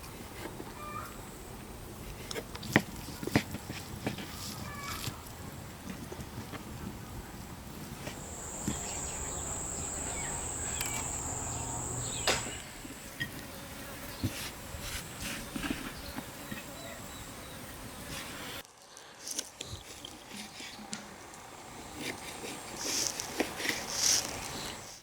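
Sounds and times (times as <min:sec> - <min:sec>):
insect high-pitched trill: 0:08.1 - 0:12.6.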